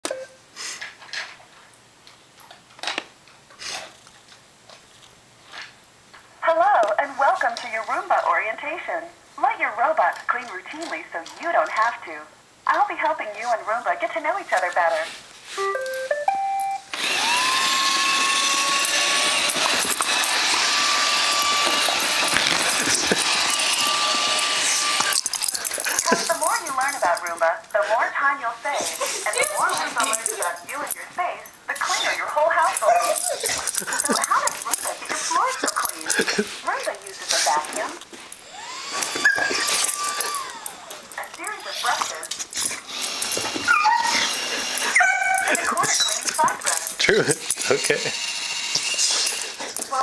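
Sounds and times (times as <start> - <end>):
robot vacuum running: 16.9 - 27.2, 38.4 - 42.2, 42.9 - 50.0.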